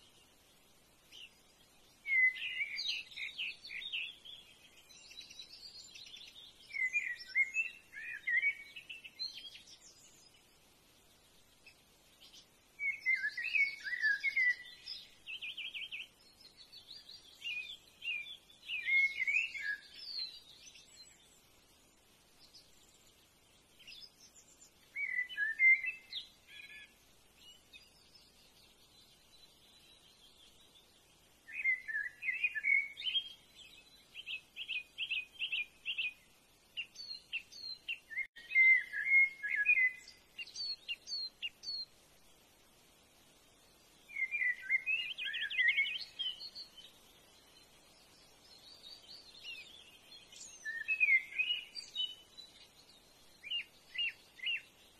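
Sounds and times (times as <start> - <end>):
bird chirping and trilling: 47.9 - 54.8.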